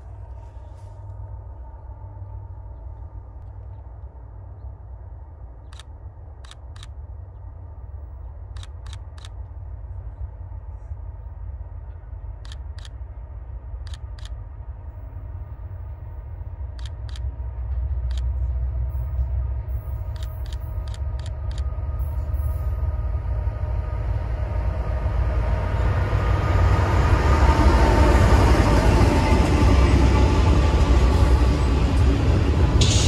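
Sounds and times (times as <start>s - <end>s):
distant diesel train rumble: 0.0s - 33.0s
sharp clicks: 5.7s - 7.0s, 8.6s - 9.4s, 13.9s - 14.4s, 16.8s - 17.3s, 18.1s - 18.3s, 20.1s - 21.7s.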